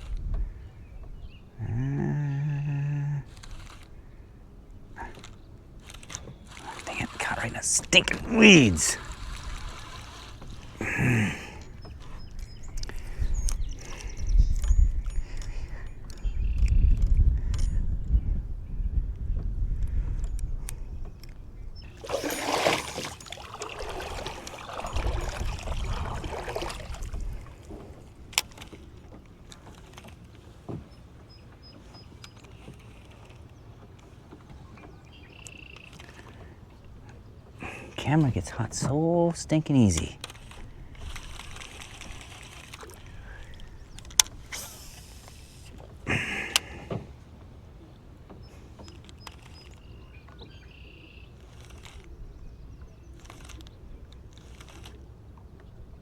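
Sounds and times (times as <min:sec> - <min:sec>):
water splashing against kayak: 0:04.9 - 0:14.0, 0:21.8 - 0:38.2, 0:40.2 - 0:52.0
brief whir: 0:40.2 - 0:45.8
short hiss: 0:44.4 - 0:46.5.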